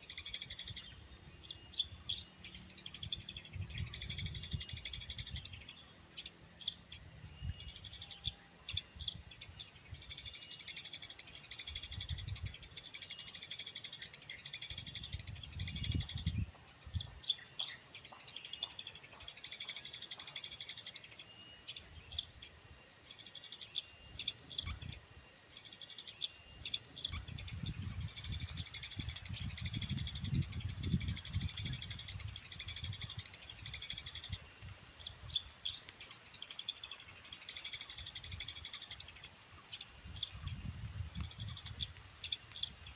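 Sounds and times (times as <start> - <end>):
high insect drone: 0.0 - 42.9
small birds chirping: 0.0 - 42.9
wind rumbling on microphone: 2.8 - 5.7, 7.0 - 8.0, 11.7 - 12.9, 14.7 - 17.3, 24.1 - 25.1, 26.6 - 35.6, 39.8 - 42.9.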